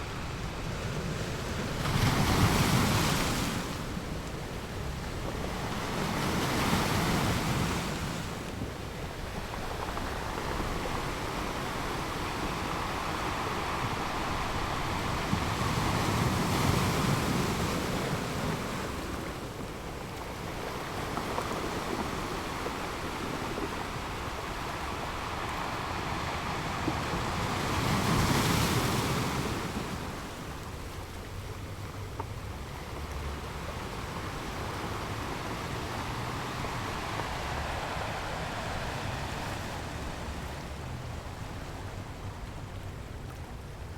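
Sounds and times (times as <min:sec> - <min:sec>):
waves breaking: 0:00.0 - 0:43.9
waves washing on sandy beach: 0:00.0 - 0:43.9.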